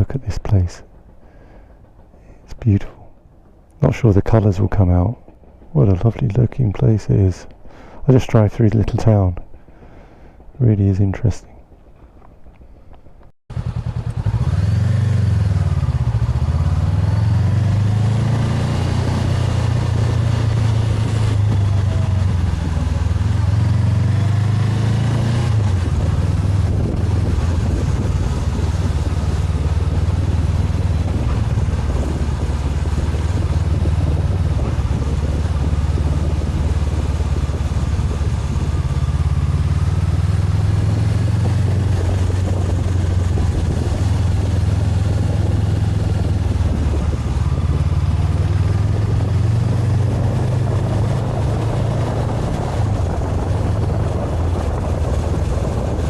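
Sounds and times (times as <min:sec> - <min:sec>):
road noise: 0:00.0 - 0:56.0
motorcycle engine cruising: 0:11.7 - 0:56.0
wind noise: 0:14.2 - 0:56.0.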